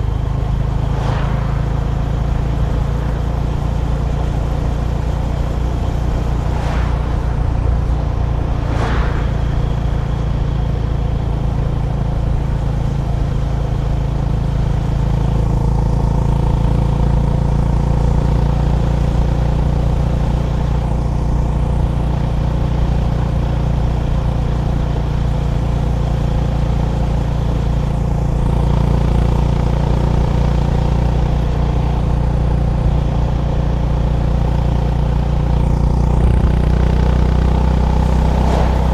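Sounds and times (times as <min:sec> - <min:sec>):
motorcycle engine cruising: 0:00.0 - 0:38.9
brief sharp noises: 0:06.4 - 0:10.7.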